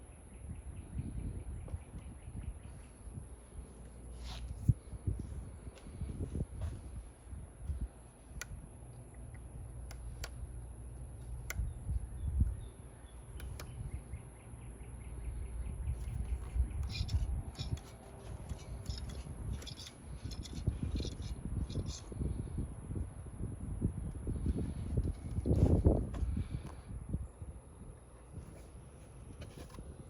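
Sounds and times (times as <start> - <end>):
wind rumble on microphone: 0.0 - 8.8, 9.9 - 30.0
sharp clicks: 13.3 - 13.8.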